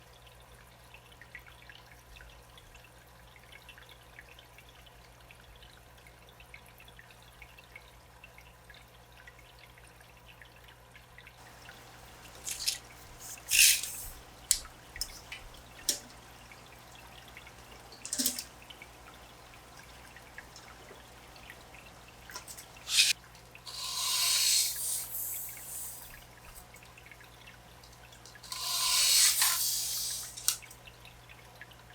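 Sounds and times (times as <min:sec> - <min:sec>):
water pouring: 0:11.4 - 0:31.0
water drips and splashes: 0:11.4 - 0:31.9.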